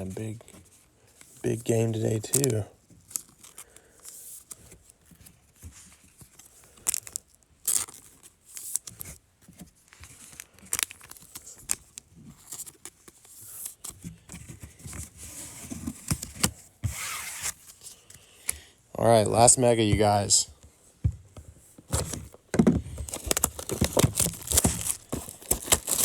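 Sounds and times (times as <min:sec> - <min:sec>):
card packaging tearing and crinkling: 0:01.5 - 0:04.9, 0:06.3 - 0:09.2, 0:10.0 - 0:13.9, 0:15.3 - 0:17.8, 0:21.9 - 0:26.0.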